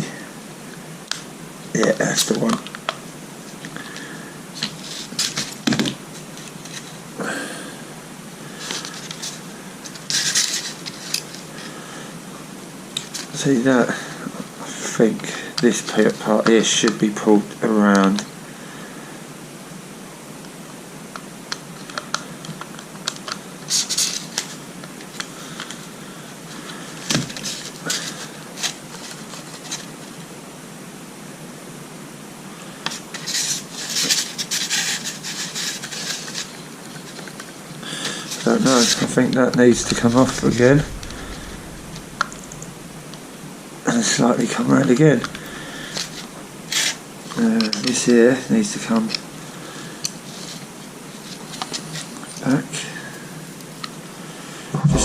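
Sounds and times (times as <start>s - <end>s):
loud knock: 39.6s - 43.6s, 54.7s - 55.0s.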